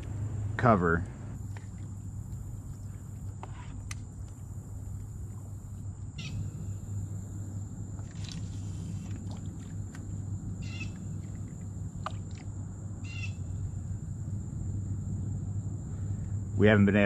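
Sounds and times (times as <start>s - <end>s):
low rumble: 0.0s - 17.0s
bird calls: 6.2s - 6.9s, 8.0s - 12.4s, 13.0s - 13.8s.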